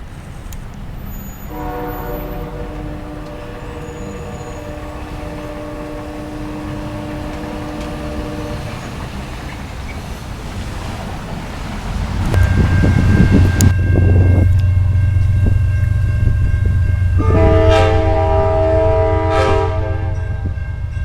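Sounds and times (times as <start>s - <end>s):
approaching train rumble: 0.0s - 21.0s
train horn long chord: 1.5s - 9.2s, 13.6s - 20.8s.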